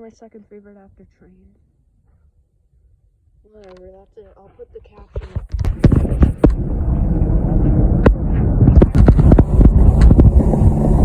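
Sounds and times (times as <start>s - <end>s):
wind buffeting microphone: 4.5s - 11.0s.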